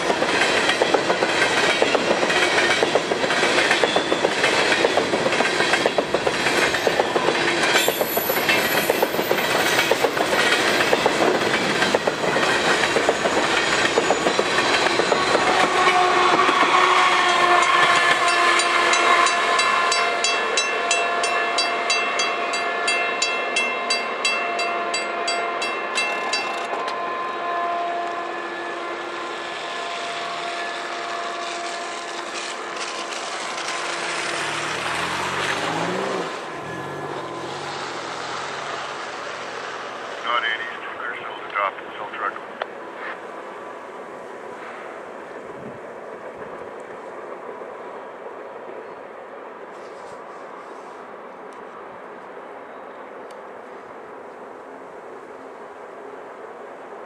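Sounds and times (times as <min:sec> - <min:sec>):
train wheels clicking over rail joints: 0:00.0 - 0:20.0.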